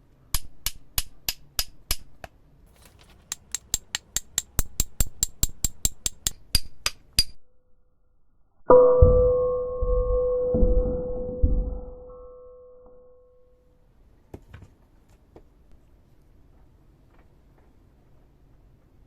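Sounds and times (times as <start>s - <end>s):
metal-on-metal taps: 2.8s - 7.4s.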